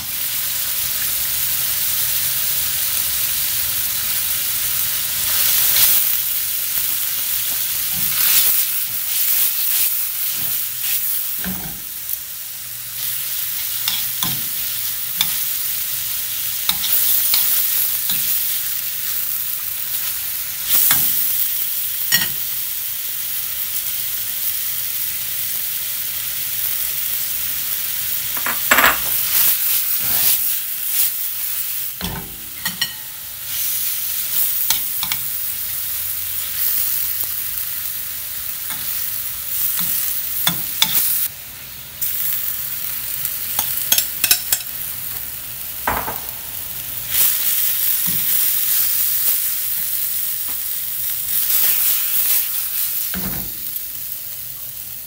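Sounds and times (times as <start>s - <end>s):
meat and onions sizzling in a pan: 0.0s - 55.0s
metal tongs scraping a pan: 13.6s - 15.6s, 16.7s - 18.6s, 32.0s - 33.7s, 43.6s - 44.8s.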